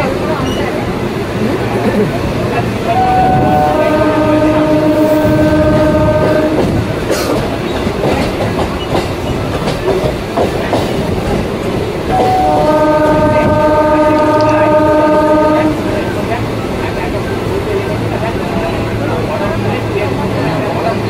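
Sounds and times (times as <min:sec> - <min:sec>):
multi-tone train horn: 0:02.8 - 0:07.0, 0:12.1 - 0:16.2
train wheels clicking over rail joints: 0:05.6 - 0:13.6.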